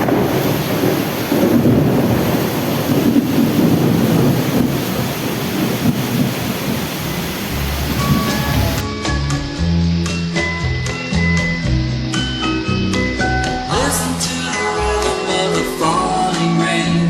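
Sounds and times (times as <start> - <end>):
heavy rain pouring: 0.0 - 8.8.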